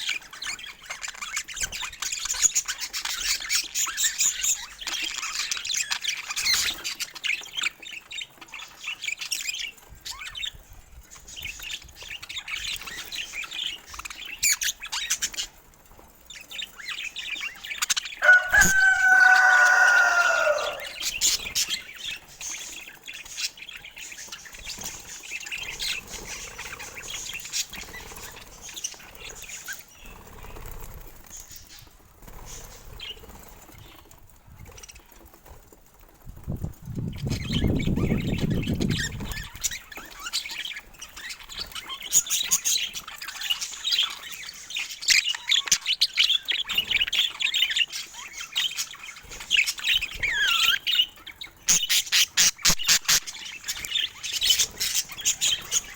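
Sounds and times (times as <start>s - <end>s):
budgerigars chirping and chattering: 0.0s - 35.6s, 36.6s - 55.9s
wing flutters: 11.2s - 43.8s
loud drawn-out bird call: 18.2s - 21.1s.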